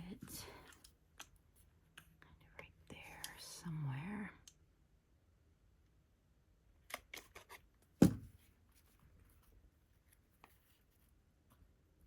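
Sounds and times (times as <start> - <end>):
thump on tabletop: 8.0 - 8.4.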